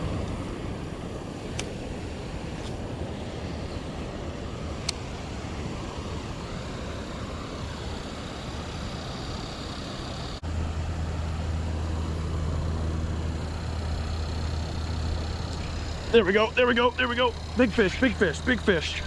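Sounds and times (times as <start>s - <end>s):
water rushing from falls: 0.0s - 13.4s
steady low hum: 0.0s - 19.0s.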